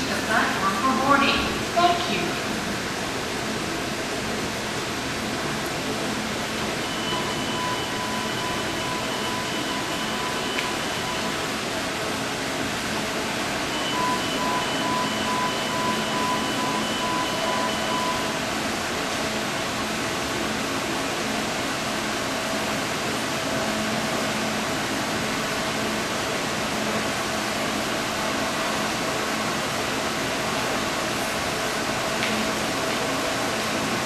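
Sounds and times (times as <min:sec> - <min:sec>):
train machinery rushing hum: 0:00.0 - 0:34.0
electronic beeping tone: 0:06.8 - 0:11.5, 0:13.7 - 0:18.4.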